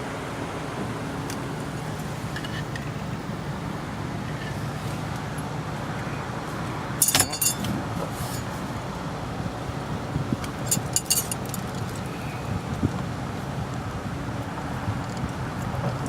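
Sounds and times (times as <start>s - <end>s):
vehicle noise hum: 0.0s - 16.0s
sharp metallic jingle: 7.0s - 7.7s, 10.7s - 11.5s.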